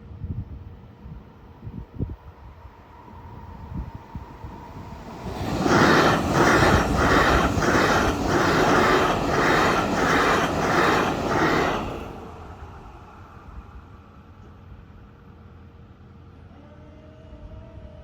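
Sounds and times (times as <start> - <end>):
train passing at speed: 0.7 - 16.5.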